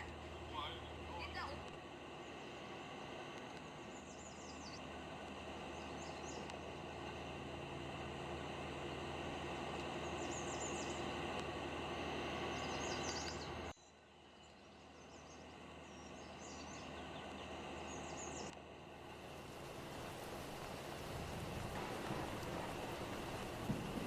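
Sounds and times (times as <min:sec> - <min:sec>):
steady outdoor hum: 0:00.0 - 0:24.0
small birds chirping: 0:03.8 - 0:04.9, 0:05.6 - 0:06.9, 0:09.8 - 0:11.3, 0:12.2 - 0:18.6.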